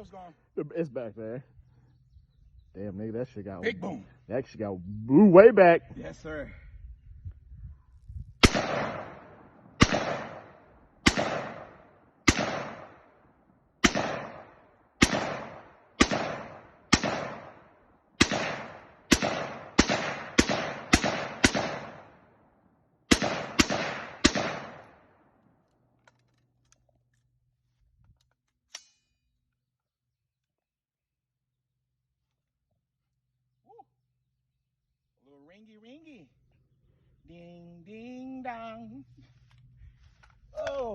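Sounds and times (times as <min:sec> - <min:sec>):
rifle shots echoing: 0:08.4 - 0:22.5, 0:23.1 - 0:25.5.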